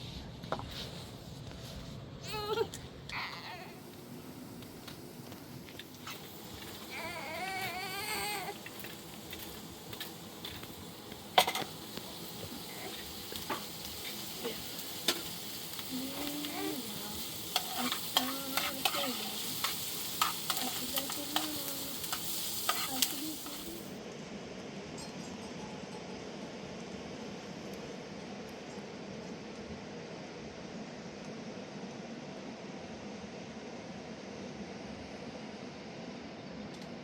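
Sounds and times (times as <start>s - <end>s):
food sizzling in a pan: 3.8s - 24.0s.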